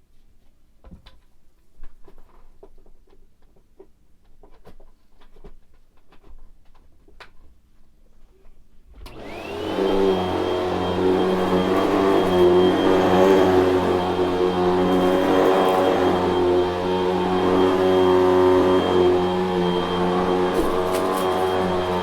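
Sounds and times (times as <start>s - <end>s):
vacuum cleaner whining: 9.1s - 22.0s.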